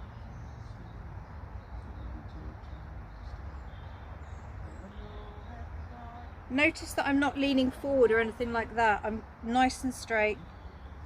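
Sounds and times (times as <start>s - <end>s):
faint bird chirps: 0.0s - 6.5s.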